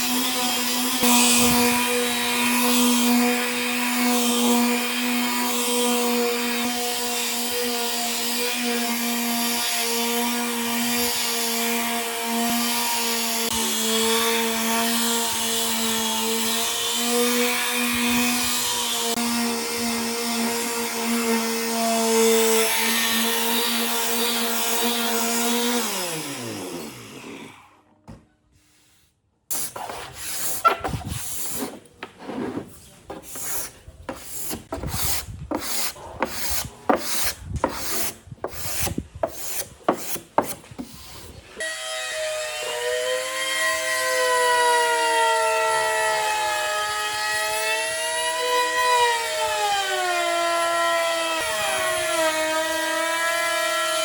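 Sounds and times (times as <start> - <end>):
power tool cutting wood: 0.0 - 27.8, 33.3 - 54.0
power tool winding down: 24.4 - 27.8
rough scraping on wood: 29.6 - 41.6.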